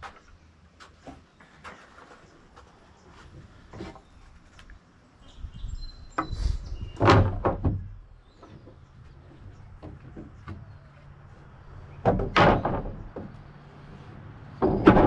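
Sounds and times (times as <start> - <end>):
thumps and clatter: 7.0 - 8.8, 12.0 - 13.4, 14.6 - 15.0.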